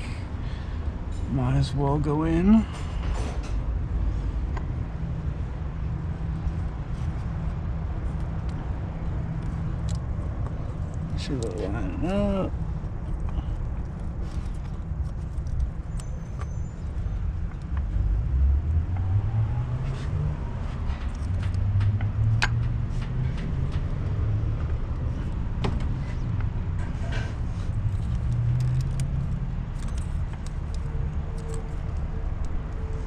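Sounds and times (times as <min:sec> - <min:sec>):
metallic clicks of tools: 0:27.9 - 0:33.0.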